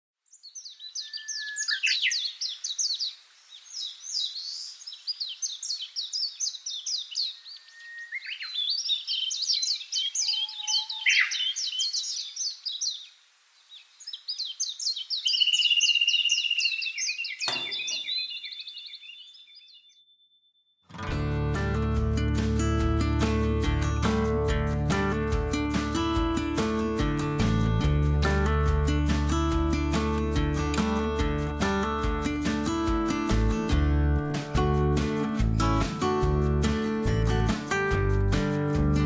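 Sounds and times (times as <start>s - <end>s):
songbird singing: 0.2s - 20.7s
sharp click with ringing tone: 17.5s - 18.4s.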